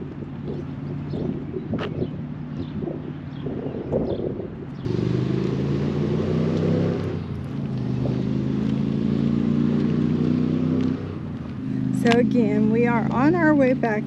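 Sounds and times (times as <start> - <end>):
wind: 0.0 - 14.0
vehicle engine running: 4.7 - 14.0.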